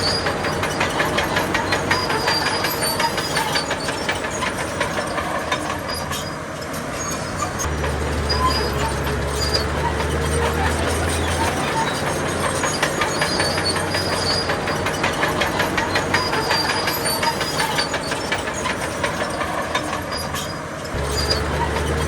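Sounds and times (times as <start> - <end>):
diesel engine: 0.0 - 22.0
faint high squeal: 5.9 - 10.4.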